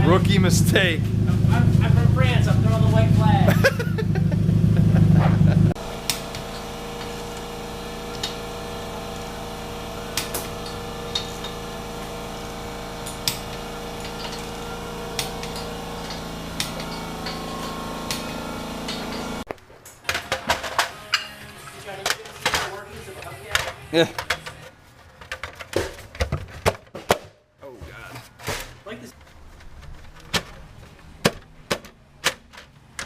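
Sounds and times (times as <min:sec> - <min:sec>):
low machine hum: 0:00.0 - 0:19.5
hand tools clicking and clinking: 0:10.2 - 0:11.7, 0:13.0 - 0:25.9.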